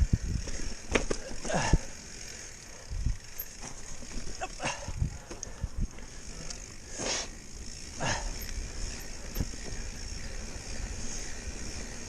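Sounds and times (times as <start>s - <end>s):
bike scraping: 0.0s - 12.0s
bike knocks and rattles: 0.1s - 2.0s, 3.2s - 6.1s, 7.7s - 10.1s.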